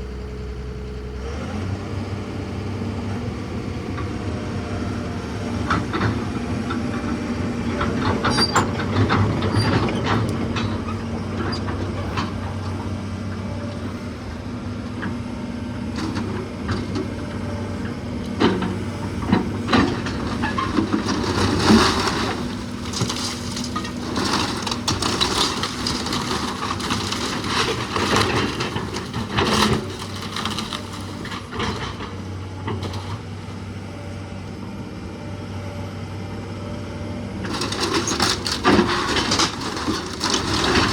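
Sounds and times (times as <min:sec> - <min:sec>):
wooden framing cracking and crunching: 0:18.5 - 0:32.0, 0:37.5 - 0:40.9
timber crashing: 0:19.3 - 0:31.5.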